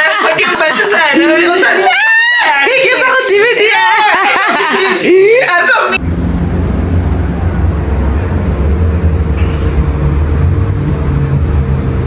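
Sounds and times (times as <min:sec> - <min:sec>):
car engine and road noise: 0:06.0 - 0:12.0.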